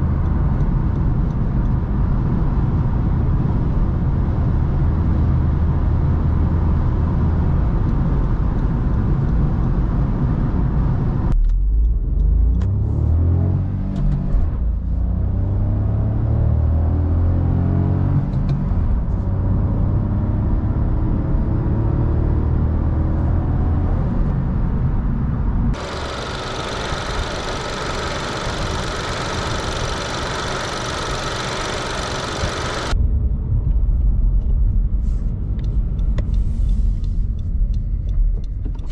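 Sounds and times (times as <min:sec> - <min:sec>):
deep cabin road rumble: 0:00.0 - 0:38.9
car engine accelerating: 0:04.9 - 0:24.8, 0:25.6 - 0:33.0
car engine idling: 0:25.8 - 0:33.0.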